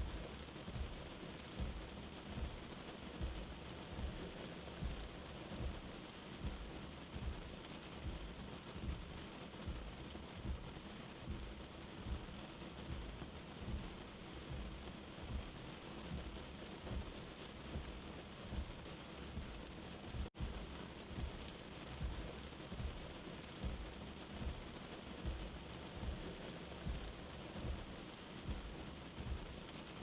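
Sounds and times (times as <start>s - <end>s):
rain falling: 0.0s - 30.0s
soft low thuds: 13.7s - 15.6s.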